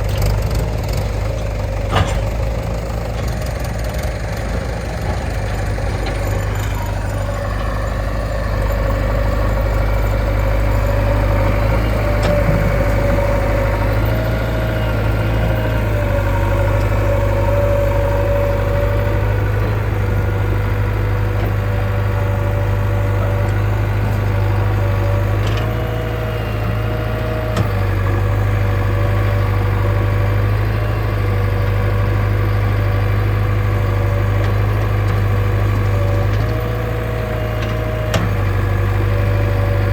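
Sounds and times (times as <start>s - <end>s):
short engine knocks: 0.0s - 7.8s, 9.0s - 17.7s
heavy diesel engine running: 0.0s - 39.9s.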